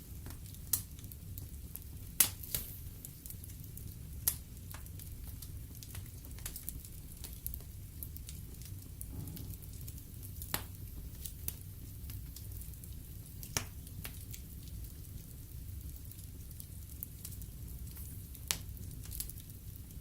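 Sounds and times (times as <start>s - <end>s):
low rumble of flames: 0.0s - 20.0s
logs crackling and popping: 0.1s - 20.0s.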